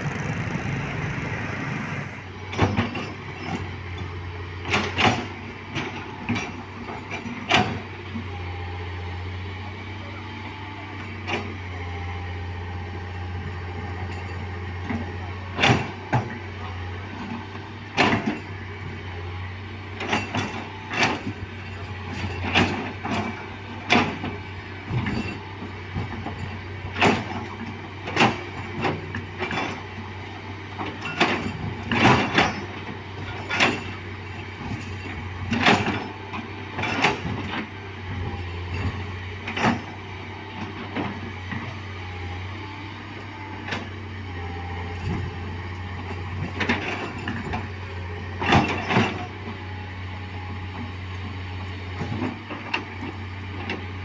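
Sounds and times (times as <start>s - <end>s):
low engine drone: 0.0s - 10.2s.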